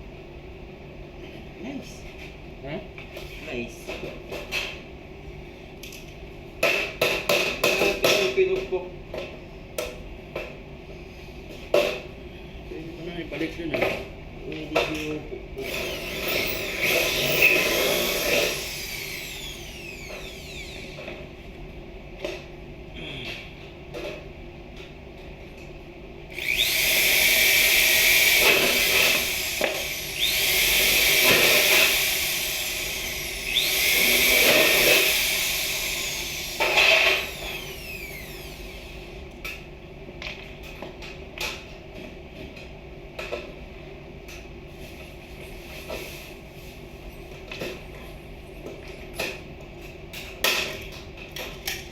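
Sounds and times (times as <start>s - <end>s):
electric drill whining: 15.6s - 21.2s, 26.3s - 39.1s.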